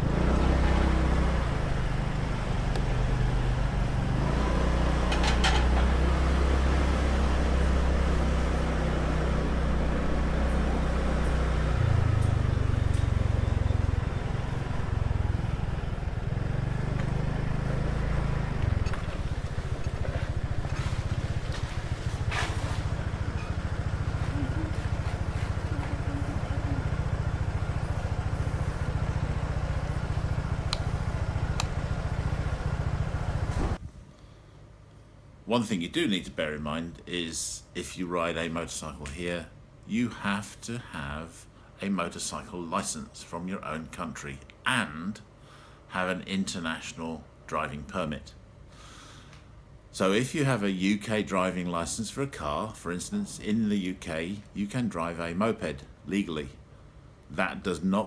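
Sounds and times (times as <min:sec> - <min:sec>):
motor scooter engine drone: 0:00.0 - 0:33.9
road and wind noise: 0:00.0 - 0:34.1.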